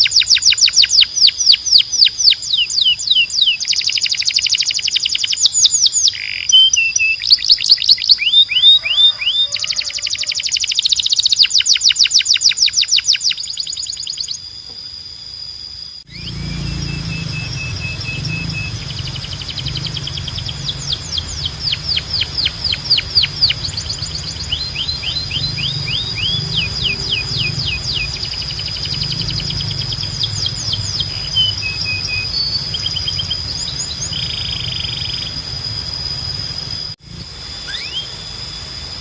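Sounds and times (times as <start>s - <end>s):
canary singing: 0.0s - 14.7s, 16.0s - 36.9s, 37.6s - 38.4s
thin high tone: 8.0s - 39.0s
low hum: 16.0s - 39.0s.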